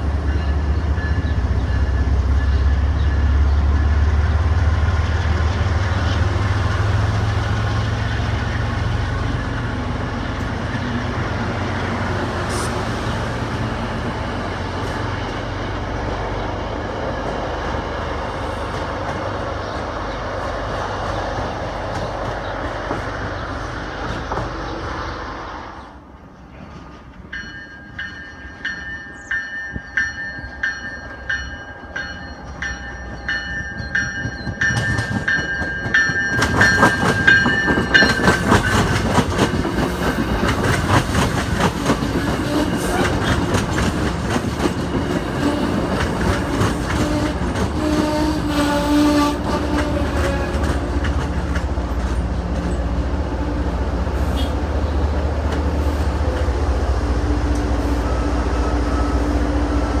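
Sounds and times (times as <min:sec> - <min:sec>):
diesel locomotive rumble: 0:00.0 - 1:00.0
train wheels rumbling on rails: 0:00.0 - 1:00.0.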